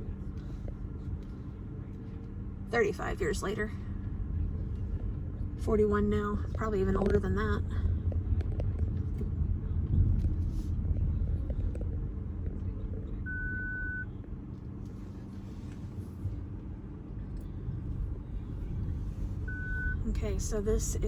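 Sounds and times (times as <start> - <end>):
car road and engine rumble: 0.0 - 21.0
short high beep: 13.3 - 14.1.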